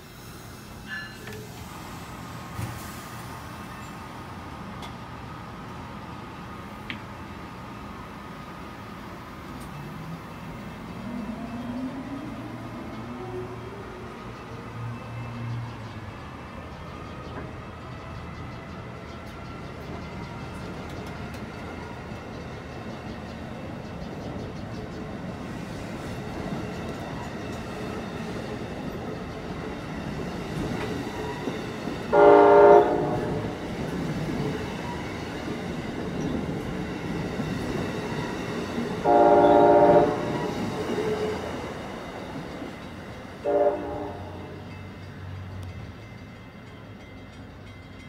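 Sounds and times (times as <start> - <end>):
train coaches rumbling on rails: 0.0 - 48.0
train horn: 32.1 - 33.6, 39.0 - 41.2, 43.4 - 44.6.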